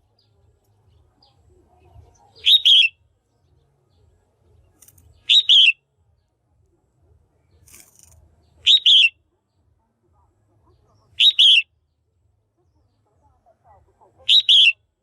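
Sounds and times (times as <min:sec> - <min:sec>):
bulbul double-note calls: 0:02.4 - 0:03.0, 0:05.3 - 0:05.8, 0:08.6 - 0:09.2, 0:11.2 - 0:11.7, 0:14.3 - 0:14.8.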